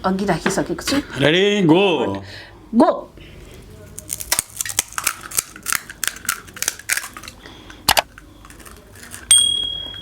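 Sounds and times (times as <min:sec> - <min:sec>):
crisp shells crunching: 0:03.9 - 0:07.4, 0:08.1 - 0:09.3
ringing metallic clink: 0:09.3 - 0:10.0.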